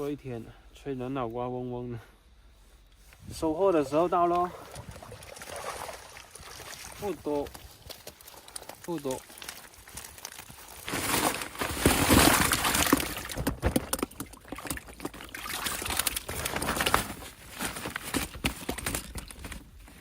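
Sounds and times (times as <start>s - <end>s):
water sloshing and pouring: 3.8s - 19.9s
water splashing and dripping: 4.2s - 10.5s, 12.1s - 16.6s.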